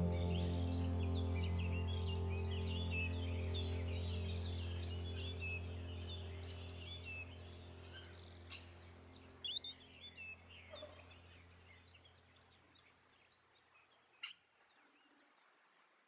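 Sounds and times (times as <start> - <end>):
low held music tone: 0.0 - 12.6
faint bird chirps and whistles: 9.4 - 9.9.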